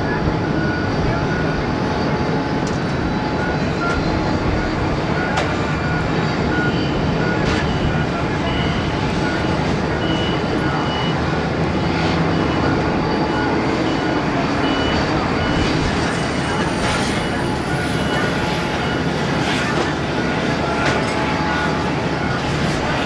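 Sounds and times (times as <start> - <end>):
high engine whine: 0.0 - 23.0
jet engines rumbling: 0.0 - 23.0
short beep: 3.4 - 11.3.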